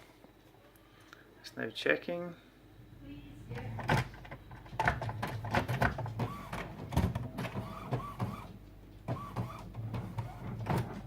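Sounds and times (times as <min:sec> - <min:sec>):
printer mechanical clicks and knocks: 0:03.6 - 0:11.0
printer motor humming and whining: 0:04.8 - 0:11.0.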